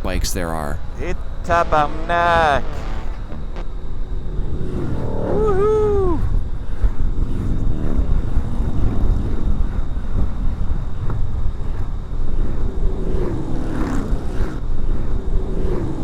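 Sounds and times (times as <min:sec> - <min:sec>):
motorcycles passing: 0:00.1 - 0:05.4
wind rushing over microphone: 0:03.8 - 0:16.0.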